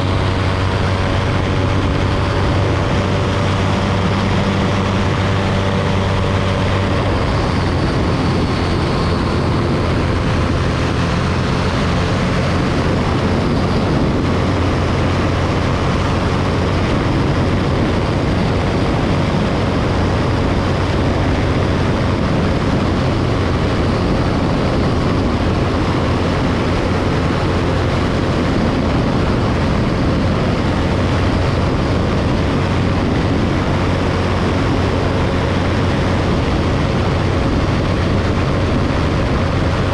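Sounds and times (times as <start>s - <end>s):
aircraft engine and propeller drone: 0.0s - 39.9s
rush of noise: 0.0s - 39.9s.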